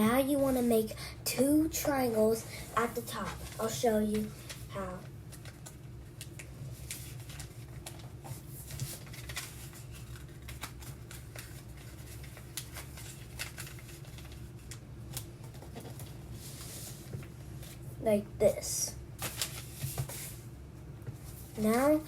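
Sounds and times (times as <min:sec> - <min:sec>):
paper crinkling and rustling: 0:02.8 - 0:17.8, 0:19.2 - 0:20.4.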